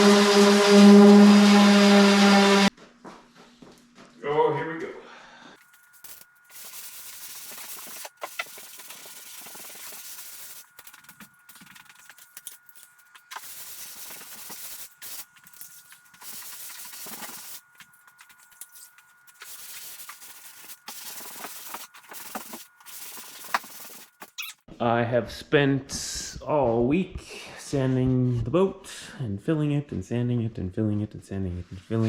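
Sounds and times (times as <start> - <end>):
sanding wood: 6.0 - 12.2, 13.2 - 24.3.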